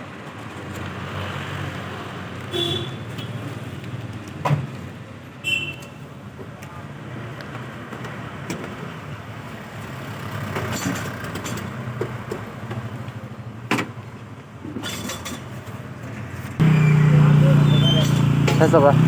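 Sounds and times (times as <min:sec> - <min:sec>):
road and wind noise: 0:00.0 - 0:19.0
motorcycle engine running: 0:16.6 - 0:19.0.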